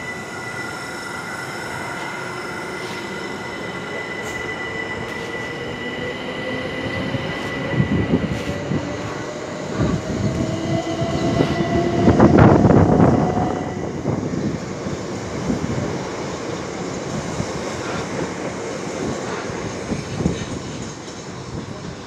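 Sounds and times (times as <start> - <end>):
high squeal: 0.0 - 14.1.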